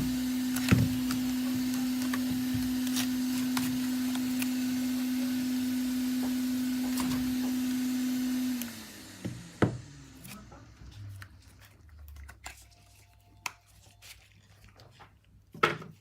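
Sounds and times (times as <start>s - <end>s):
small electric machine humming: 0.0s - 11.6s.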